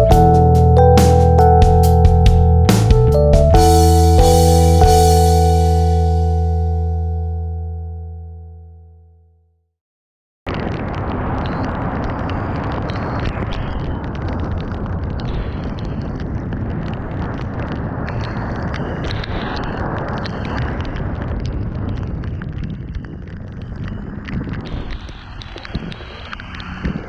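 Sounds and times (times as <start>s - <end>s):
sharp crackles: 10.5s - 27.0s
wind rushing over microphone: 10.5s - 27.0s.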